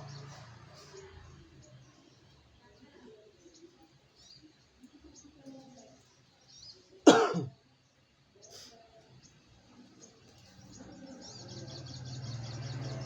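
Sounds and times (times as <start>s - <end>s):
bird chirping: 9.2s - 13.0s.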